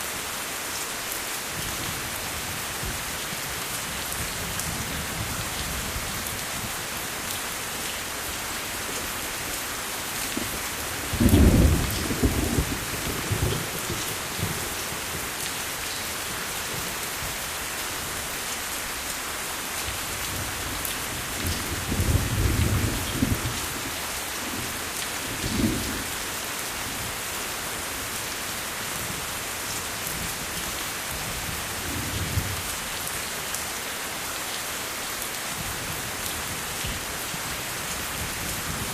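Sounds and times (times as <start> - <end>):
steady rain: 0.0 - 38.9
thunder rumbling: 11.1 - 13.8.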